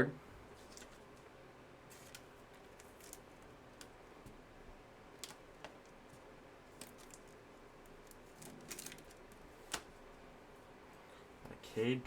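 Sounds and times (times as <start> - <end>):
trading cards rustling and clicking: 0.6 - 1.3, 1.9 - 4.0.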